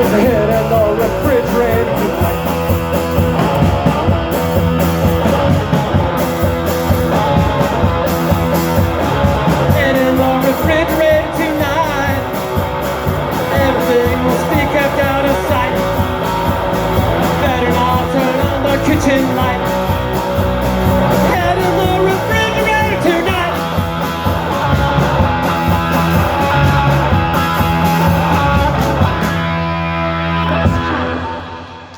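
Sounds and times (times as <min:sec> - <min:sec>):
steady drum beat: 0:00.0 - 0:31.3
bass: 0:00.0 - 0:31.9
electric guitar lines: 0:00.0 - 0:31.9.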